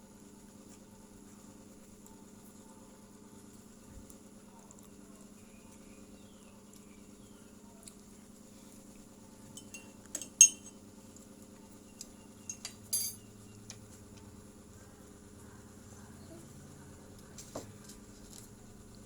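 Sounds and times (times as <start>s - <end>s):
utensils clinking against dishes: 9.5s - 10.8s, 12.4s - 13.3s.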